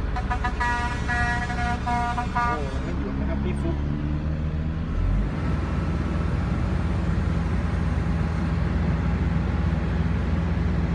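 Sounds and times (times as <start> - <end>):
excavator diesel engine running: 4.9 - 10.9.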